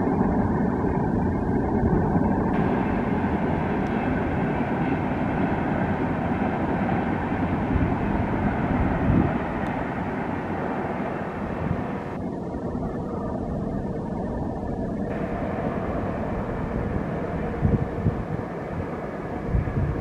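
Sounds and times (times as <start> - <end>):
distant train rumble: 0.0 - 20.0.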